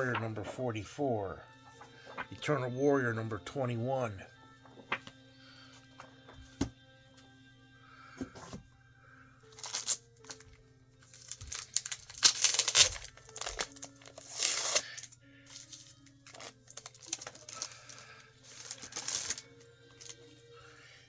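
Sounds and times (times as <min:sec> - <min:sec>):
faint background music: 0:00.0 - 0:21.0
plastic packaging rustling: 0:01.6 - 0:02.4, 0:04.6 - 0:05.2, 0:09.5 - 0:20.5.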